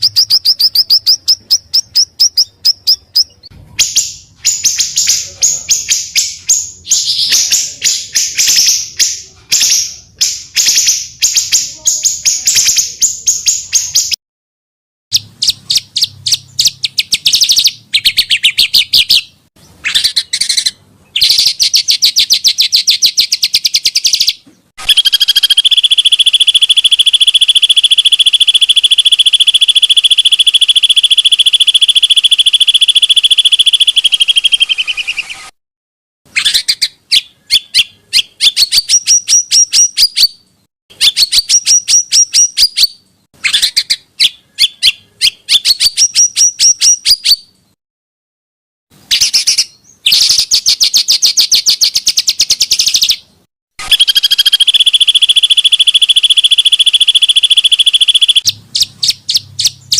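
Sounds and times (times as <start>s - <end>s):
songbirds chirping: 0.0s - 14.2s, 15.1s - 35.5s, 36.3s - 47.8s, 49.1s - 59.9s
steady high bird trill: 0.0s - 14.2s, 15.1s - 35.6s, 49.1s - 59.9s.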